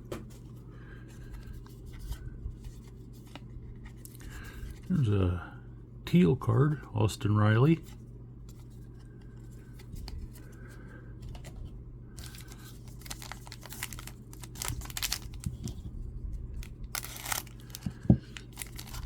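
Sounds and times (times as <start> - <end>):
foil crinkling: 12.2 - 15.8, 16.6 - 19.0.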